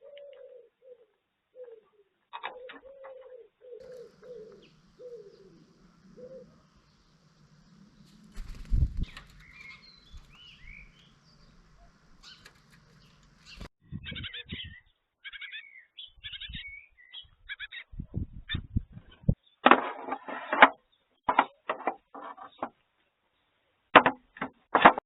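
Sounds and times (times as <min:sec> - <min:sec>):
small birds chirping: 0:00.0 - 0:19.6
low thumps: 0:04.1 - 0:13.7
loud rustling bursts: 0:05.8 - 0:13.8.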